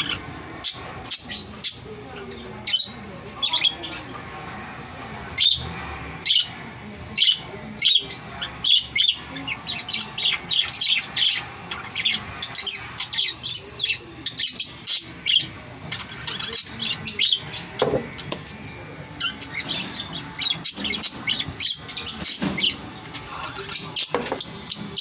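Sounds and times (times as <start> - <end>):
birds chirping and squawking: 0.0 - 25.0.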